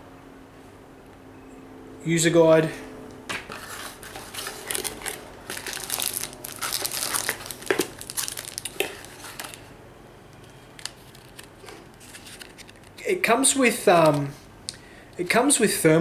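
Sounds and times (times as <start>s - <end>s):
packaging crinkling and rustling: 3.4s - 13.1s, 13.9s - 14.4s.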